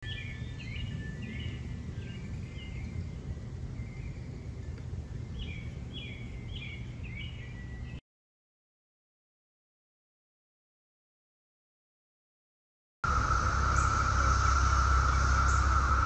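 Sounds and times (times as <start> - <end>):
songbird chirping: 0.0 - 8.0, 13.0 - 16.0
steady low rumble: 0.0 - 8.0, 13.0 - 16.0.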